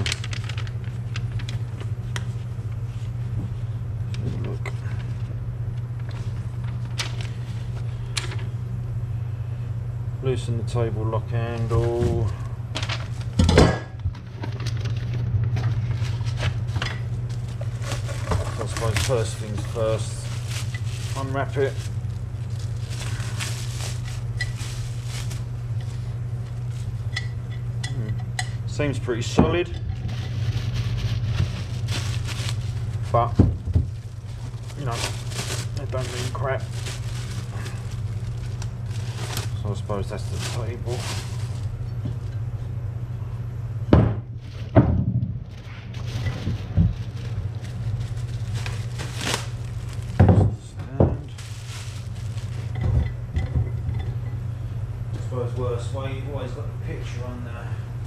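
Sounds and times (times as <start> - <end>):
packaging rustling: 0.0 - 1.8, 14.5 - 27.0, 30.0 - 41.8, 45.6 - 50.2, 51.2 - 53.1
steady low hum: 0.0 - 58.0
rustling scrape: 30.0 - 33.0, 40.3 - 41.7, 51.3 - 52.8.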